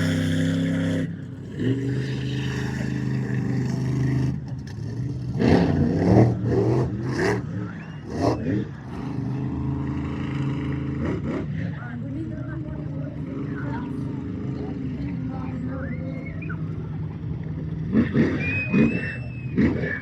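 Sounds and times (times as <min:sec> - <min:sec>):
monster truck engine running: 0:00.0 - 0:20.0.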